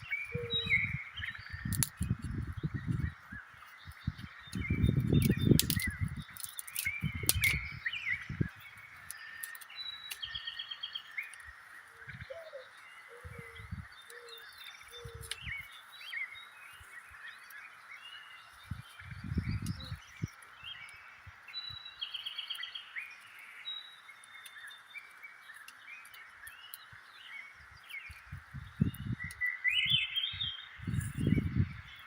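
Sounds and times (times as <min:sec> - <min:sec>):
short low bird calls: 0:00.0 - 0:06.1
birds chirping and calling: 0:00.0 - 0:32.0.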